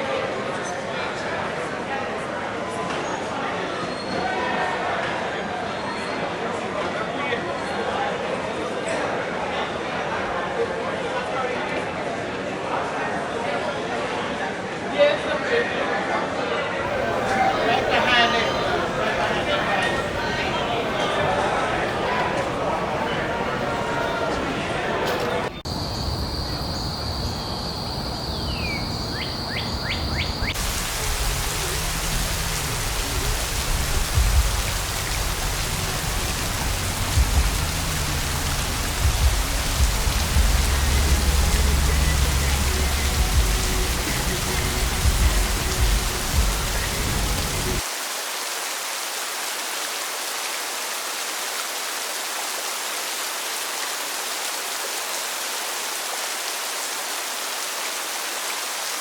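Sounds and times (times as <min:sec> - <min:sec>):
steady hiss: 0:16.9 - 0:25.6, 0:30.5 - 0:53.1
soft background music: 0:34.4 - 0:47.8.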